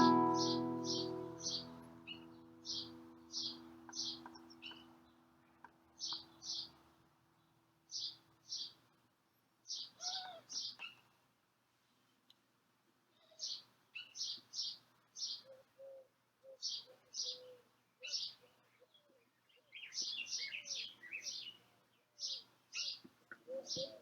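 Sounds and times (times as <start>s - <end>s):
birds chirping: 0.0s - 6.8s.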